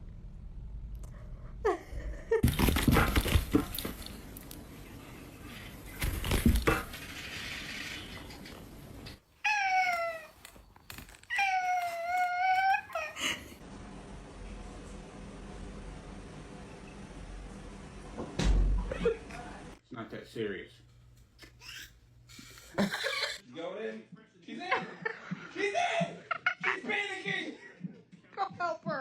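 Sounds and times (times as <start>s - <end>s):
rustling and clattering: 2.4s - 4.4s.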